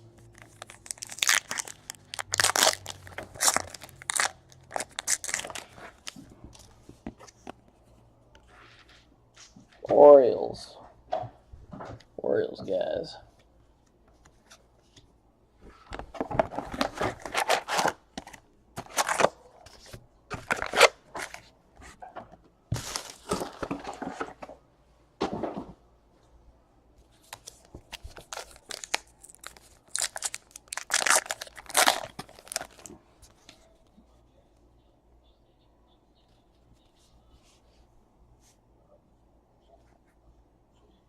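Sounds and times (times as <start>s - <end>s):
foil wrappers tearing and crinkling: 0.4s - 5.8s, 28.2s - 32.9s.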